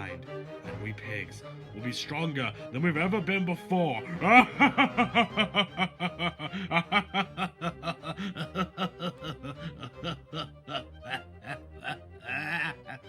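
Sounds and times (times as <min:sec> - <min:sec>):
man's deep villain laugh: 0:04.1 - 0:13.0.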